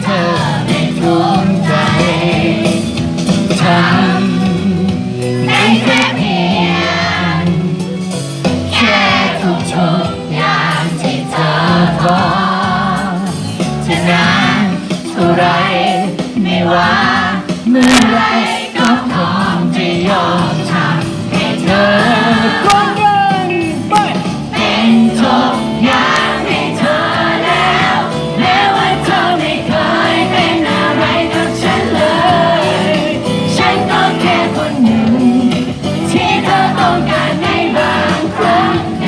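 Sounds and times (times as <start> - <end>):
pop ballad with band: 0.0 - 39.0
person singing: 3.6 - 7.7.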